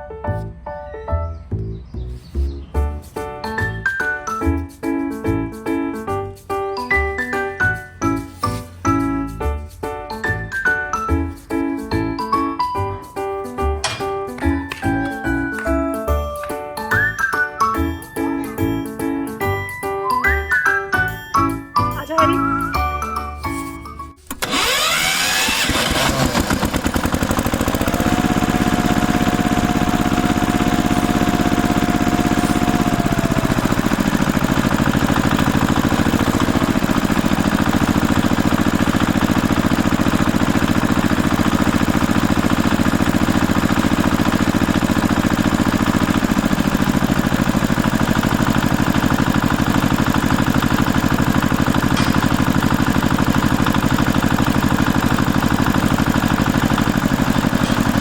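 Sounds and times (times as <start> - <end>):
engine starting and idling: 24.2 - 58.0.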